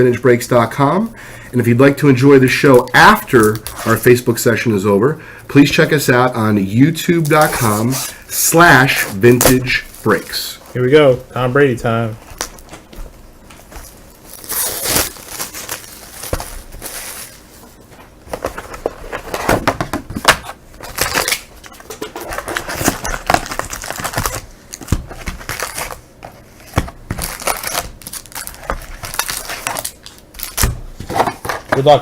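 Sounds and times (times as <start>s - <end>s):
plastic wrap crinkling and tearing: 7.1s - 10.6s, 13.9s - 17.5s, 20.3s - 32.0s.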